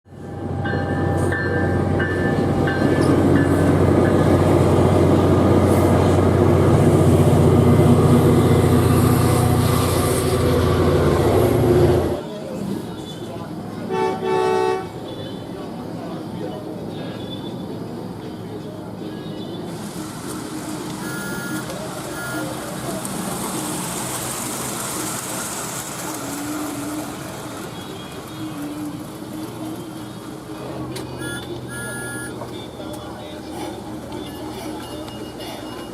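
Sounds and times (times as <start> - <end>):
train wheels rumbling on rails: 0.1 - 13.4
train rumbling past: 0.1 - 35.9
crossing bell dinging: 0.6 - 3.8, 31.2 - 32.4.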